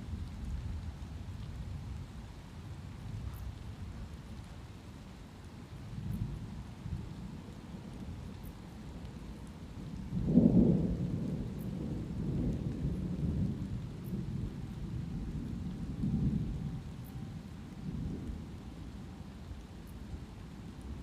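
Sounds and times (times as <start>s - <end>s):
light rain: 0.0s - 21.0s
rolling thunder: 10.1s - 17.0s.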